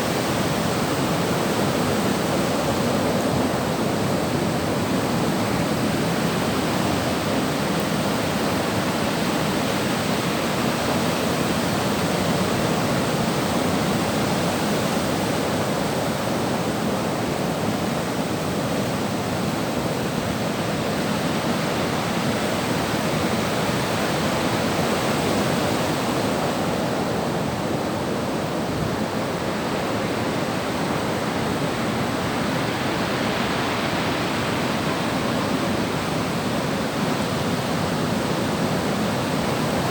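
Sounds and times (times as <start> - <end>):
sea surf washing on shore: 0.0 - 39.9.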